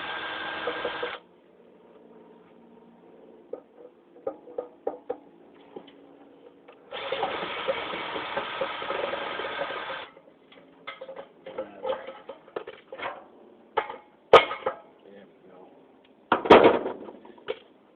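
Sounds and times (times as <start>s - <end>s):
cordless drill running: 0.0s - 1.2s, 6.9s - 10.1s.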